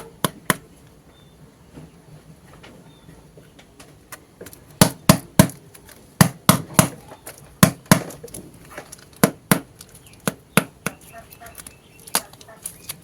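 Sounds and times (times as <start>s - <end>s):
sharp knocks on hard surface: 6.2s - 7.0s.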